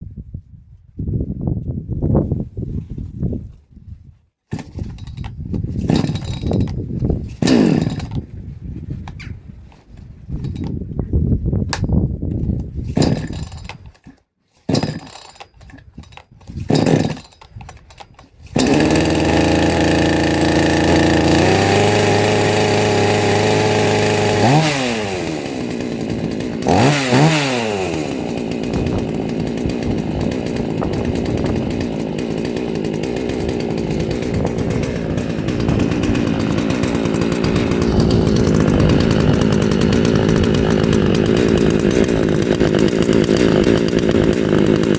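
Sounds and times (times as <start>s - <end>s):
chainsaw pull-starting: 4.5s - 8.3s, 9.0s - 10.8s, 11.7s - 44.9s
chainsaw engine running and revving: 7.4s - 8.2s, 14.7s - 15.3s, 16.7s - 17.4s, 18.6s - 44.9s.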